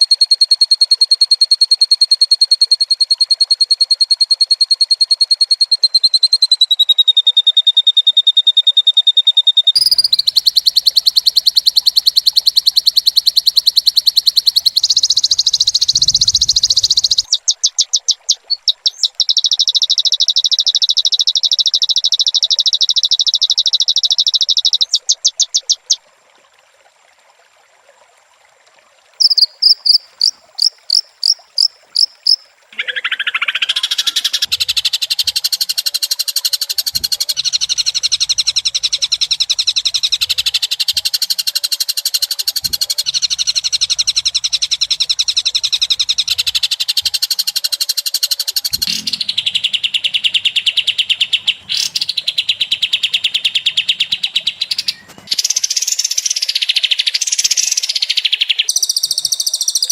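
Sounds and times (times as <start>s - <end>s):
bird singing high notes and trills: 9.7s - 23.1s, 29.2s - 34.6s, 48.3s - 59.9s.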